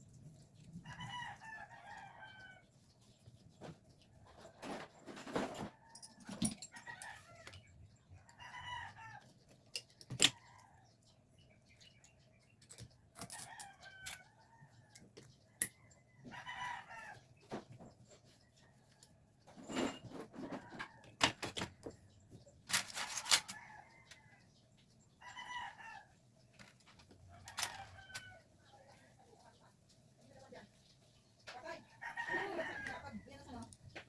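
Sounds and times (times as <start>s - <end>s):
chickens calling: 23.4s - 29.7s, 31.1s - 34.0s.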